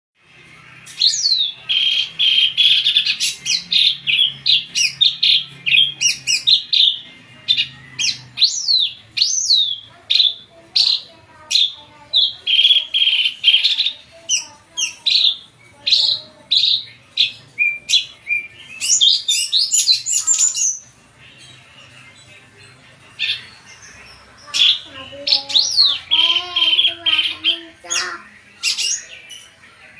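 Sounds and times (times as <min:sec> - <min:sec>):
bird whistling and chattering: 0:00.9 - 0:20.8.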